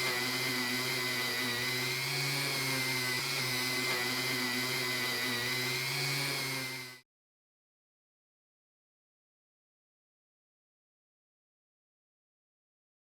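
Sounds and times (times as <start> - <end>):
power tool whining: 0.0 - 7.0.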